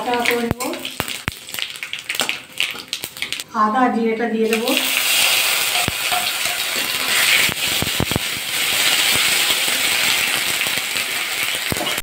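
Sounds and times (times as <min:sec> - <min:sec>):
spices sizzling in hot oil: 0:00.0 - 0:03.5, 0:04.4 - 0:12.0
metal spatula scraping pan: 0:05.1 - 0:07.6.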